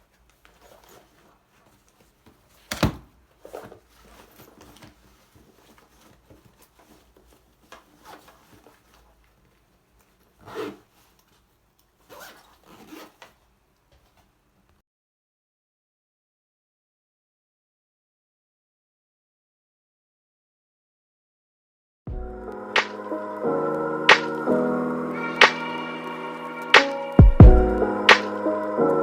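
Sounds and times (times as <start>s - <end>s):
soft rubbing and rustling: 0.0s - 14.6s.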